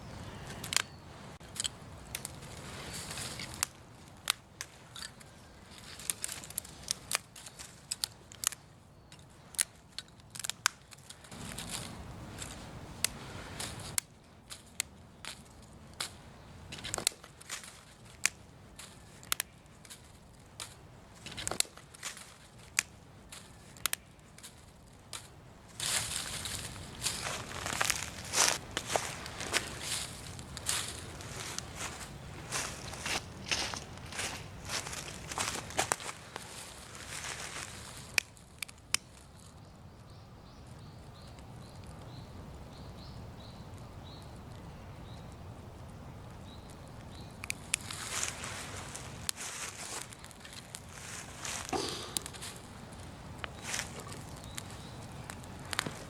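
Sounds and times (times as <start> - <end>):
leaf fire crackling and popping: 0.6 - 39.7, 43.6 - 56.0
dry leaves rustling and crunching: 1.4 - 39.6, 47.5 - 56.0.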